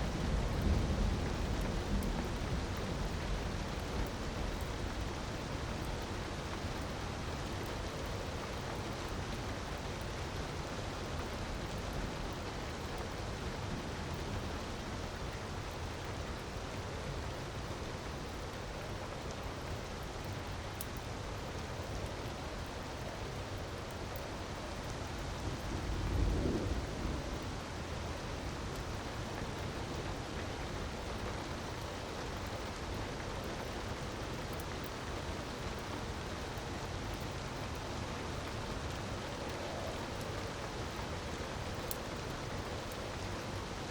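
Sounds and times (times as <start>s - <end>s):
rushing water: 0.0s - 43.9s
faint ticks: 41.7s - 43.5s.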